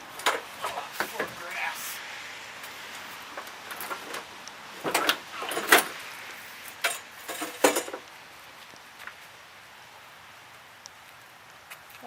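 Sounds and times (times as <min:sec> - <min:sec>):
lawnmower deck clanking and scraping: 0:03.4 - 0:06.0, 0:06.7 - 0:08.0.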